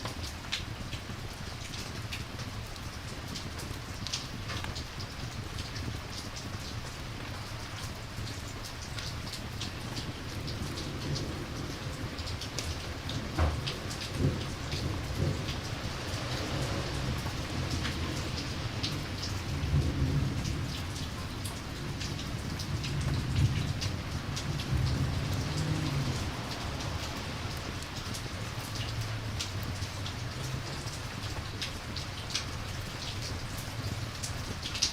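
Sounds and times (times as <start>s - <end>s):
rain falling: 0.0s - 34.9s
distant thunder rumbling: 9.9s - 32.4s.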